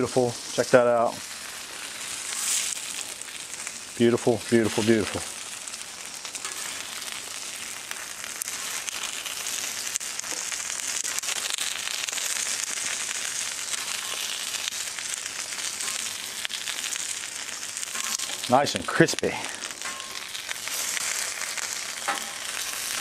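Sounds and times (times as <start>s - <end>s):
fish sizzling in oil: 0.0s - 23.0s
metal spatula clicks and scrapes: 6.4s - 6.8s, 22.0s - 23.0s.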